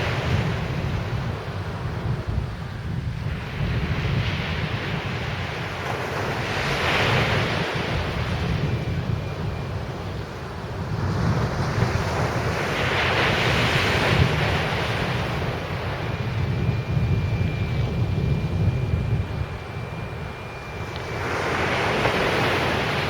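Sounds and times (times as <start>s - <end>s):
wind rumble on microphone: 0.0s - 23.0s
sea waves breaking on beach: 21.0s - 23.0s.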